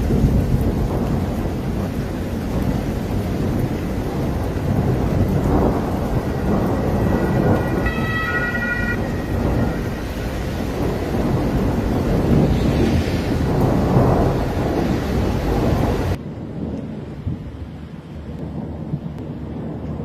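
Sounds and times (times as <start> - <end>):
rain: 0.0 - 20.0
thunder rumbling: 0.0 - 20.0
siren-like tone: 6.5 - 10.1.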